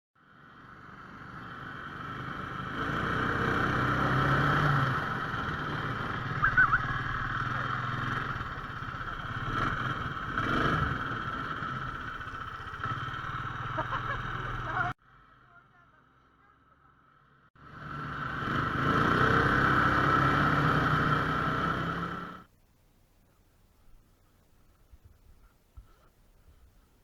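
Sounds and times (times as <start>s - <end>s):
snow sled engine running: 0.3s - 15.0s, 17.6s - 22.5s.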